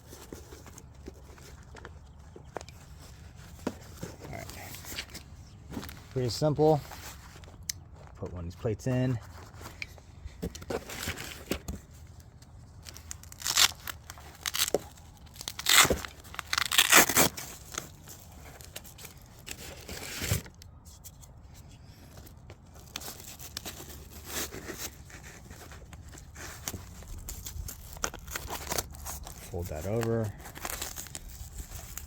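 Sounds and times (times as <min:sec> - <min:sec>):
hook-and-loop fastener ripping: 0:12.8 - 0:20.6, 0:22.8 - 0:32.0.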